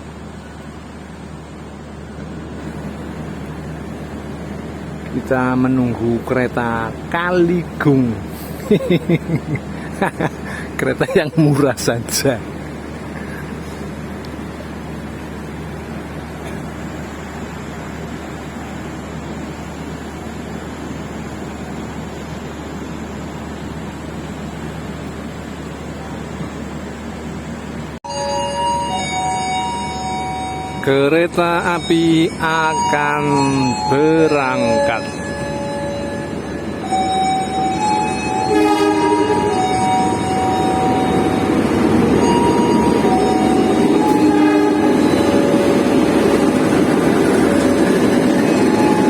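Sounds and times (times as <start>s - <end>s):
even rush of station noise: 0.0s - 49.0s
train rumbling: 0.0s - 49.0s
train horn: 34.7s - 45.9s.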